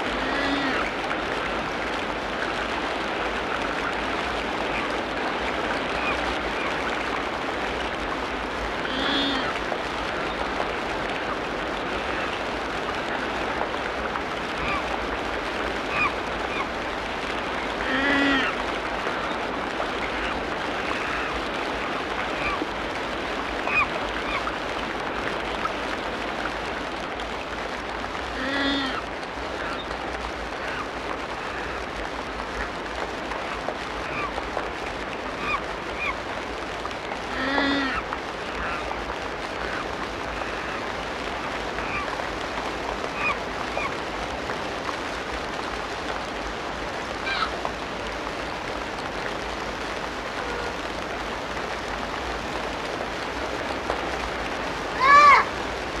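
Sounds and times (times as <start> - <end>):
low-pitched animal call: 0.1 - 0.9, 8.9 - 9.6, 17.8 - 18.6, 28.4 - 29.0, 37.3 - 38.0
short animal calls: 8.9 - 9.5, 17.8 - 18.6.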